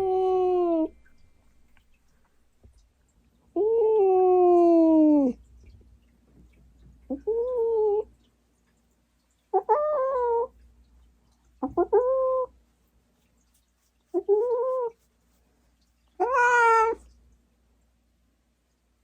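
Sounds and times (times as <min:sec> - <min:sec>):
cat meowing: 0:16.2 - 0:17.1.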